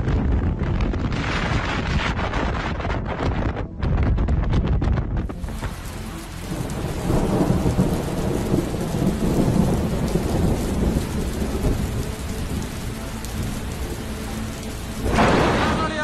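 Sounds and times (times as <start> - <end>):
strong wind gusts roaring: 0.0 - 16.0
heavy rain: 5.3 - 16.0.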